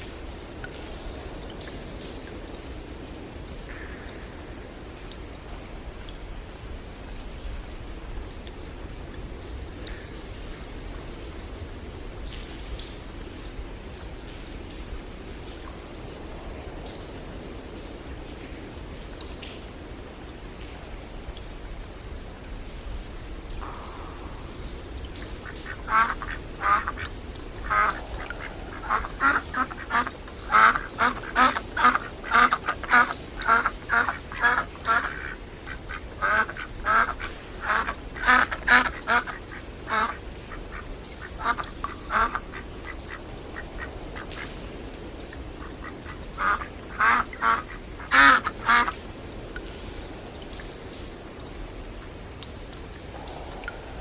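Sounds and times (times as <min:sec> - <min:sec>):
rain hissing: 0:19.6 - 0:54.0
ducks quacking: 0:25.4 - 0:43.2, 0:45.6 - 0:49.0.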